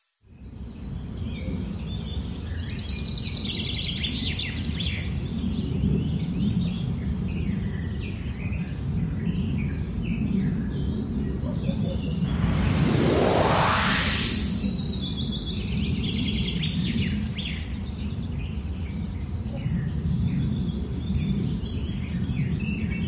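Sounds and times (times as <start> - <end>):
steady low rumble: 12.1 - 15.0.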